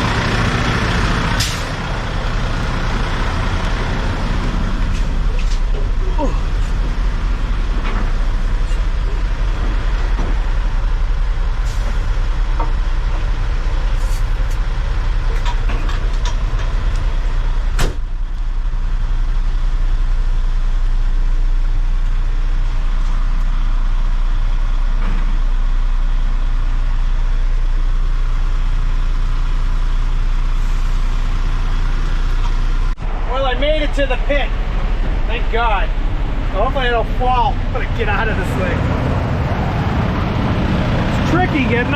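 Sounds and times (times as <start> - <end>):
dump truck engine drone: 0.0 - 41.9.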